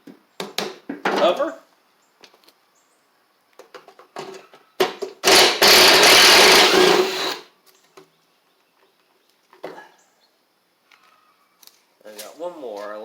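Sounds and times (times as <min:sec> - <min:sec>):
handheld power tool running: 0:05.2 - 0:07.4.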